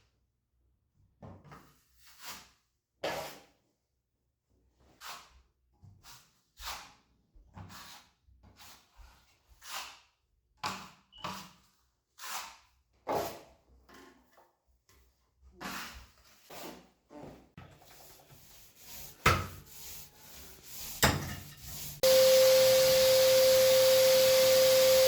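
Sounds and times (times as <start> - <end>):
hand scraping drywall: 4.8 - 10.2, 10.8 - 22.0.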